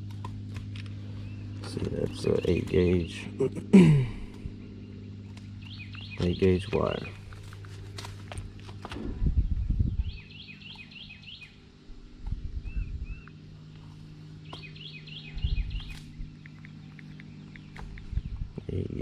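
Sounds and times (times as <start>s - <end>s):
low hum: 0.0s - 19.0s
songbird whistled song: 5.6s - 7.2s, 9.4s - 11.6s, 12.6s - 13.4s, 14.4s - 18.5s.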